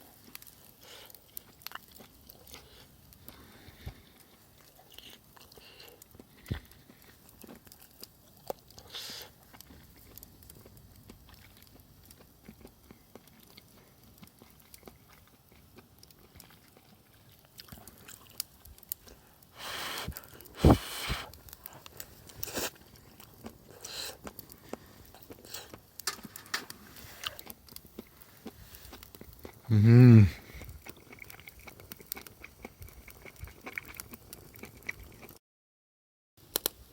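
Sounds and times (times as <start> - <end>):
person chewing and crunching: 0.0 - 35.4
small clicks and knocks: 26.0 - 26.8.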